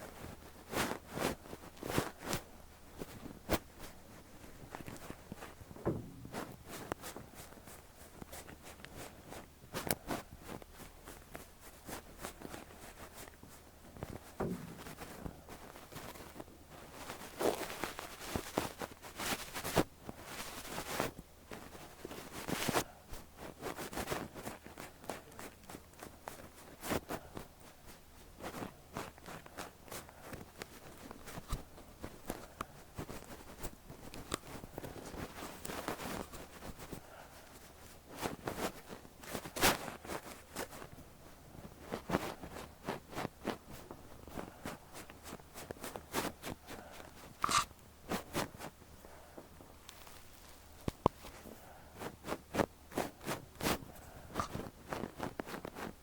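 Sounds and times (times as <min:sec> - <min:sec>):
brush fibres crackling: 0:00.1 - 0:56.0
brush swishing over ear: 0:41.9 - 0:48.7.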